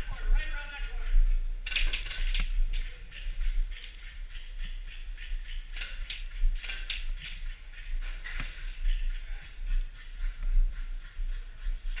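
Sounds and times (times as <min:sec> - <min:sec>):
steady low rumble: 0:00.0 - 0:12.0
airsoft guns firing: 0:01.6 - 0:02.6, 0:05.7 - 0:07.3.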